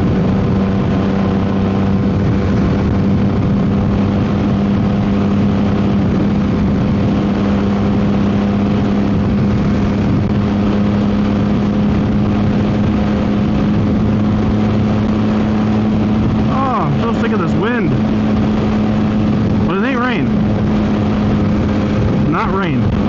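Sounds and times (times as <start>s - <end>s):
motorcycle engine cruising: 0.0s - 23.0s
wind noise on microphone: 0.0s - 23.0s.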